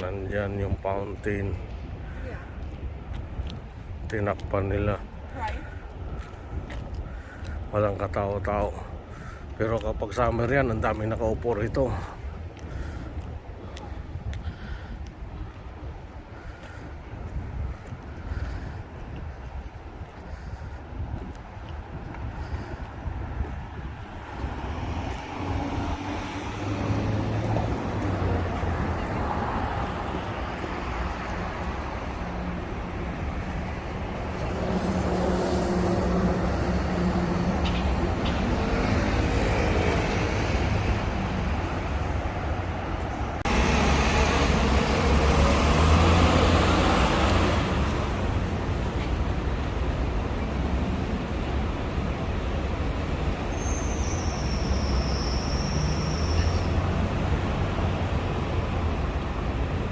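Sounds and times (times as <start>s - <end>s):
cars and buses passing: 0.0s - 59.9s
loud vehicle passing: 24.4s - 53.4s
brief high squeal: 53.5s - 56.7s.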